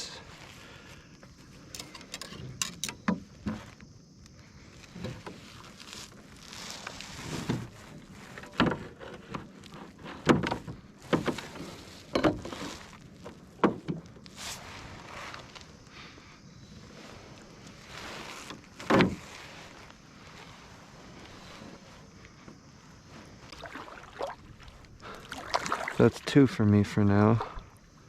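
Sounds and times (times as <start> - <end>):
knocks in a canoe: 8.3 - 12.6, 13.5 - 14.2, 18.8 - 19.3
water swishing: 22.8 - 28.0.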